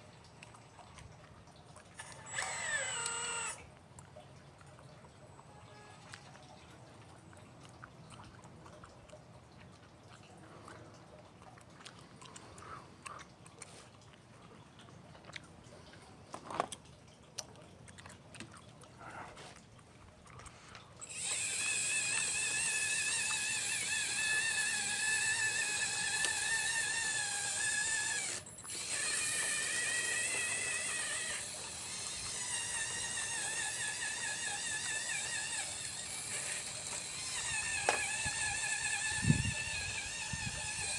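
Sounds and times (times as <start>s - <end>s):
hydraulic pump motor whining: 2.0s - 3.7s, 21.0s - 40.9s.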